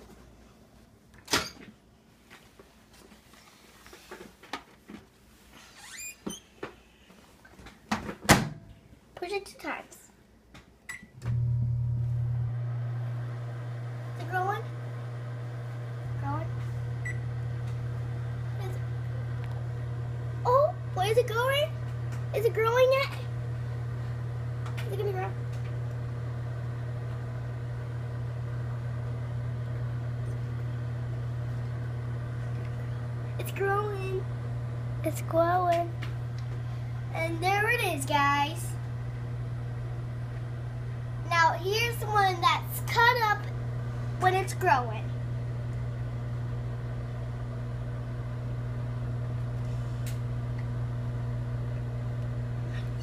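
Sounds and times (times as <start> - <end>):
microwave oven hum: 10.8 - 53.0.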